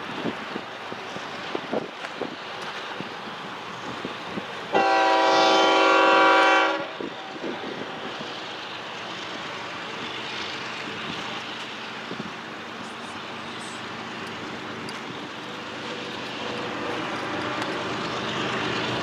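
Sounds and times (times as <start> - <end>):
passing train rushing: 0.0 - 19.0
wind: 0.0 - 19.0
locomotive air horn blast: 4.7 - 7.0.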